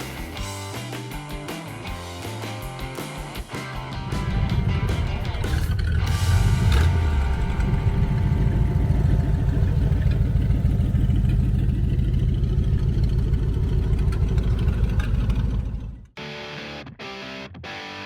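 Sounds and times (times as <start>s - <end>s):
car engine idling: 3.9s - 16.1s.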